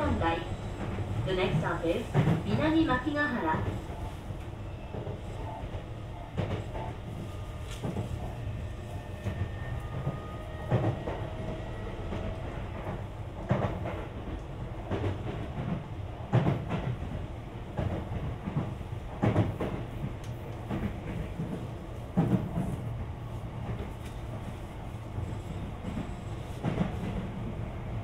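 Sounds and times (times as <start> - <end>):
rail joint clacks: 0.0 - 8.2, 9.0 - 22.9
wheels rumbling on rail: 0.0 - 28.0.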